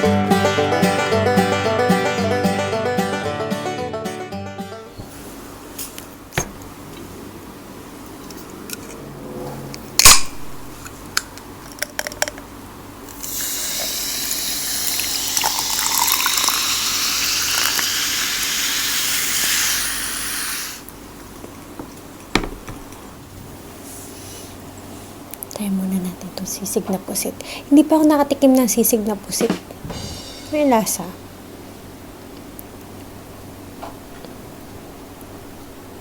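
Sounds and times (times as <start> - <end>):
liquid pouring into a glass: 13.3 - 19.6
loud knock: 22.4 - 22.9, 29.5 - 30.6.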